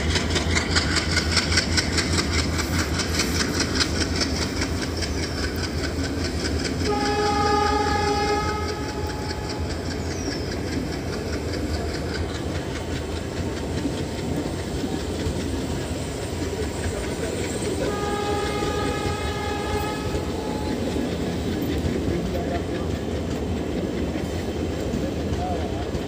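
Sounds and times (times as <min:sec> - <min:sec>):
train rumble: 0:00.0 - 0:26.0
train wheels clacking over rail joints: 0:00.0 - 0:26.0
diesel train horn: 0:06.8 - 0:09.8, 0:17.7 - 0:21.6.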